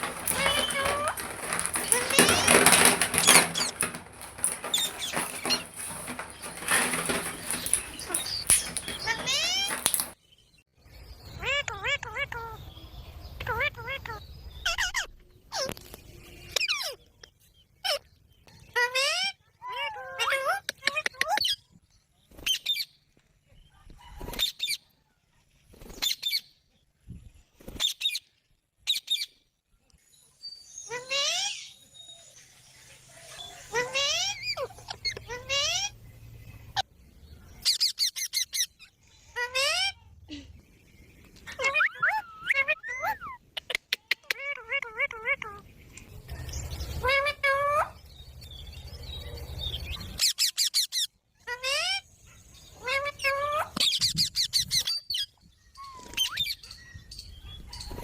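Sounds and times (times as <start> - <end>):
rustling and scratching: 0.0 - 10.2.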